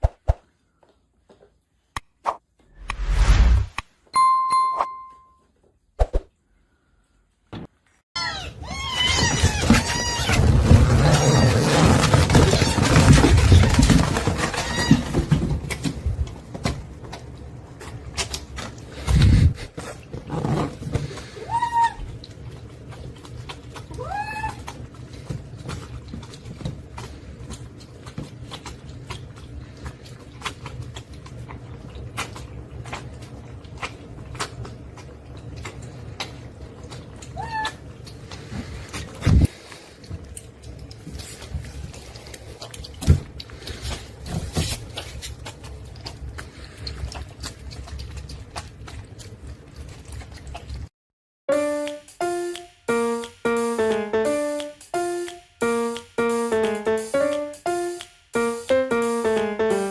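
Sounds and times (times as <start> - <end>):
bell-like ding: 4.2 - 5.4.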